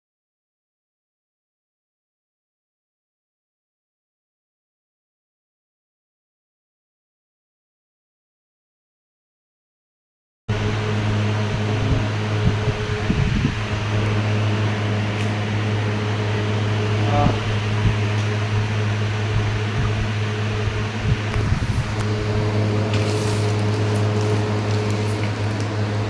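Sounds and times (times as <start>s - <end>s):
electric motor hum: 10.5s - 26.0s.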